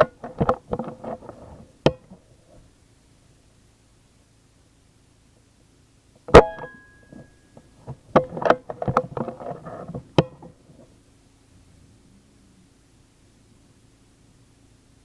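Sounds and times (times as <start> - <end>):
metallic ring: 6.3 - 7.8.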